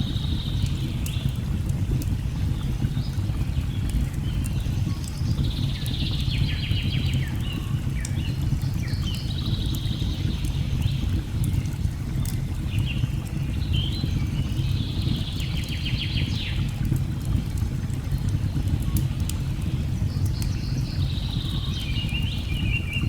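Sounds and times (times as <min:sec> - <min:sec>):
fire crackling: 0:15.2 - 0:23.0.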